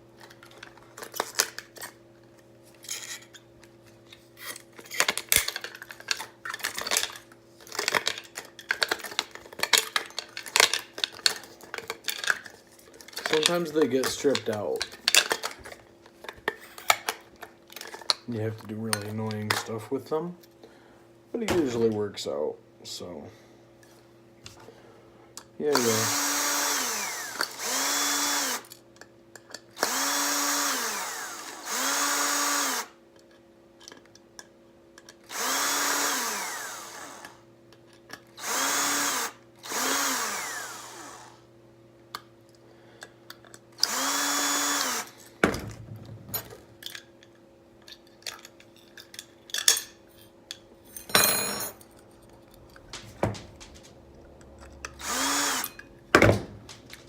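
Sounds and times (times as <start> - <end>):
small metal parts clinking: 2.8 - 3.4, 4.4 - 17.1, 46.3 - 53.0
cordless drill whining: 25.7 - 28.7, 29.8 - 33.0, 35.3 - 37.4, 38.4 - 41.4, 43.8 - 45.3, 55.0 - 55.8.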